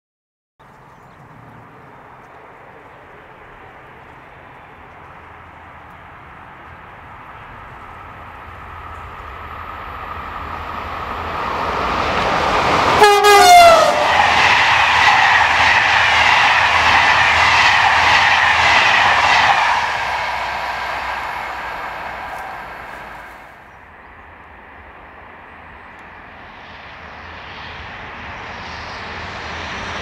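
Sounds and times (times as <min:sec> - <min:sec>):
train rumble: 0:00.8 - 0:30.0
train horn blast: 0:12.9 - 0:14.6.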